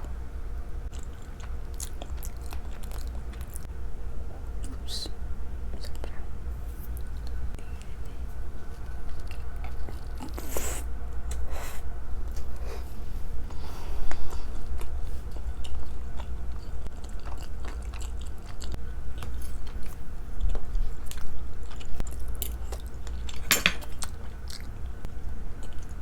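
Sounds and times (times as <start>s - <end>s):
steady low hum: 0.0s - 26.0s
chewing food: 0.8s - 3.7s, 6.9s - 11.5s, 13.5s - 26.0s.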